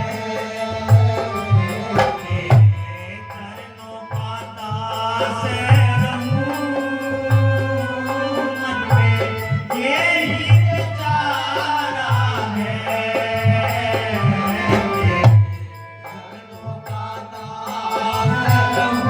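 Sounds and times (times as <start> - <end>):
devotional singing: 0.0 - 19.0
instrumental accompaniment: 0.0 - 19.0
regular drum beat: 8.4 - 16.0.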